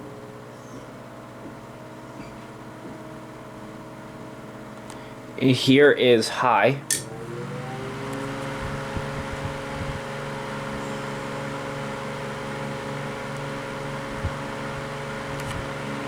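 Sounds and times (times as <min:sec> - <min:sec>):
fan motor hum: 0:00.0 - 0:16.0
air rushing from fan blades: 0:07.1 - 0:16.0.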